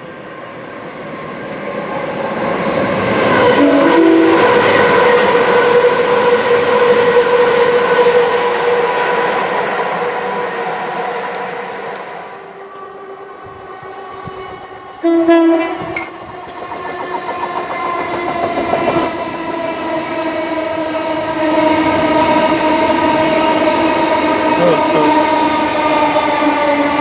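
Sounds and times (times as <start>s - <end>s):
approaching train hum: 0.0s - 27.0s
train horn blast: 3.4s - 7.2s, 15.0s - 16.1s.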